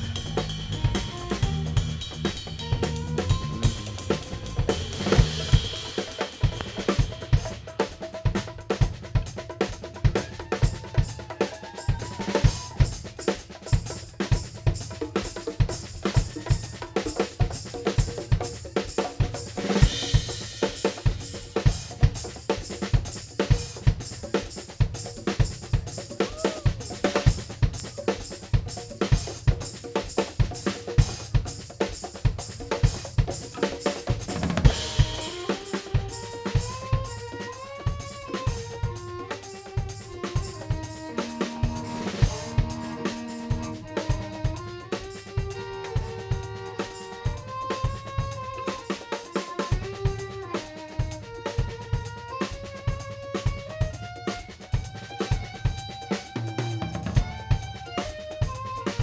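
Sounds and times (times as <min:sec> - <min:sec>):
drum kit beat: 0:00.0 - 0:59.0
live band playing: 0:00.0 - 0:59.0.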